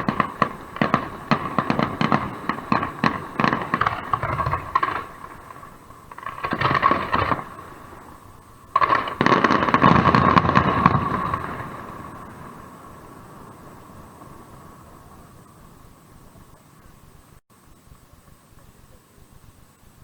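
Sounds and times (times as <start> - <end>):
fireworks crackling and popping: 0.0 - 17.4.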